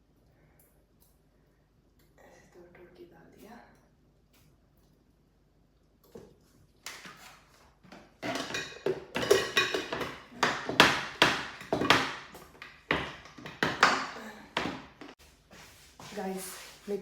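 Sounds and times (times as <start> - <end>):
dishes clattering: 8.0 - 15.2.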